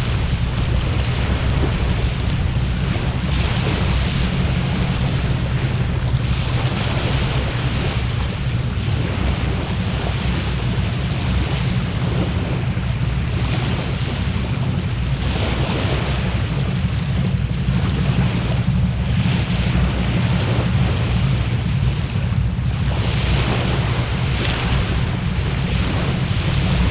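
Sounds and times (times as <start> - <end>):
wood fire flames rushing: 0.0 - 10.4, 22.4 - 26.9
low fire rumble: 0.0 - 26.9.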